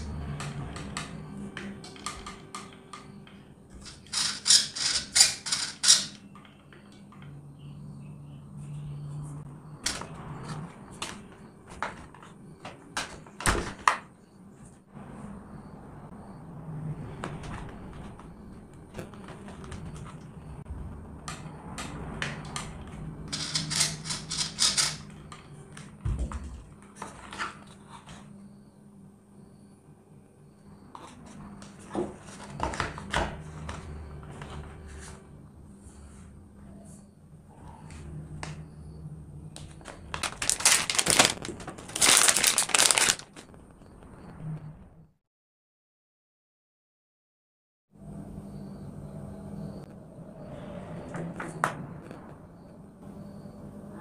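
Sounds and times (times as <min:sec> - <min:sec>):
small hard parts clicking and scraping: 0:03.7 - 0:07.1, 0:21.3 - 0:25.5, 0:40.1 - 0:43.5
crinkling scraping handling noise: 0:39.8 - 0:43.6.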